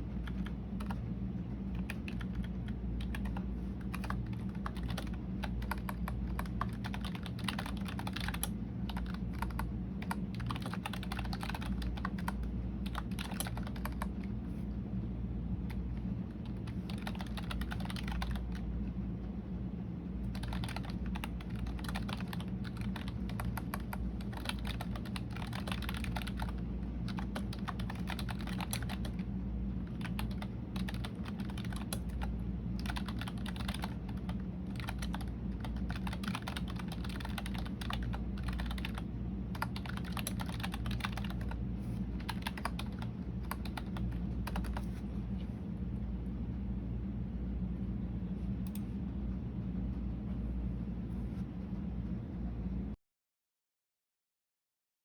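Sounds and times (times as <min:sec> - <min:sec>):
steady low hum: 0:00.0 - 0:53.0
typing on computer keyboard: 0:00.2 - 0:01.0, 0:01.8 - 0:14.3, 0:16.0 - 0:18.6, 0:20.3 - 0:29.2, 0:29.8 - 0:41.6, 0:42.2 - 0:44.9.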